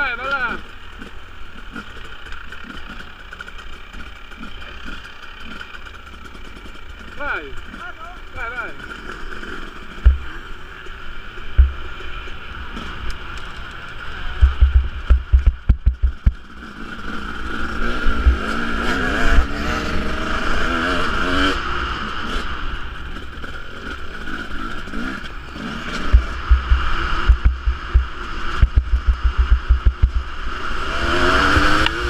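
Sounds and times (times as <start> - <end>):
motocross bike engine revving: 0.0 - 32.0
low thuds on microphone: 10.0 - 10.3, 11.6 - 11.8, 14.4 - 16.4, 26.1 - 30.3.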